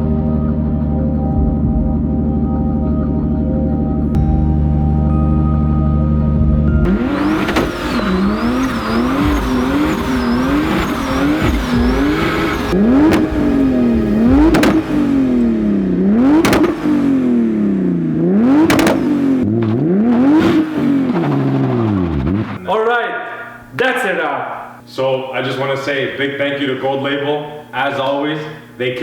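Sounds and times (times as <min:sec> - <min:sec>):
car engine revving: 0:05.7 - 0:22.6
sharp exhaust pop: 0:06.9 - 0:22.6.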